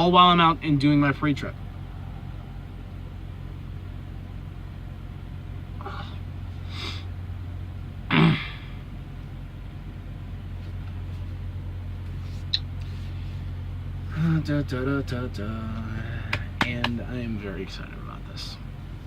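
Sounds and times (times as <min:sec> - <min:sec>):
diesel engine idling: 0:00.0 - 0:19.0
sneeze or cough: 0:08.1 - 0:08.7.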